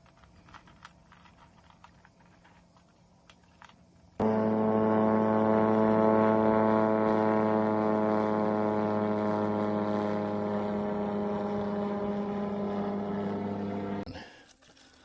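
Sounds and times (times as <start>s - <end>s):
steady motor hum: 4.2s - 14.1s.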